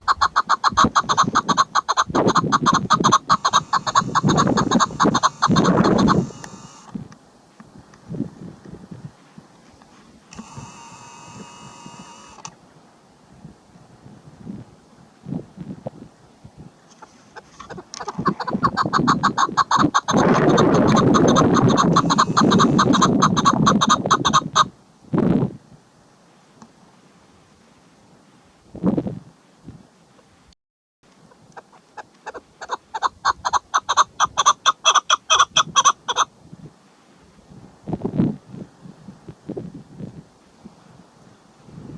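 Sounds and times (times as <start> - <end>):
partridge clucking calls: 0.0 - 6.9, 16.9 - 24.7, 31.3 - 36.3.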